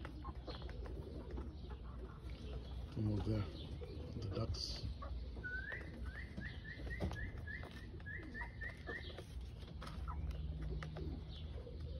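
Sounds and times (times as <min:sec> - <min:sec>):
hens pecking clicks: 0:00.0 - 0:03.6, 0:04.7 - 0:11.9
bird chirping rising notes: 0:03.4 - 0:11.9.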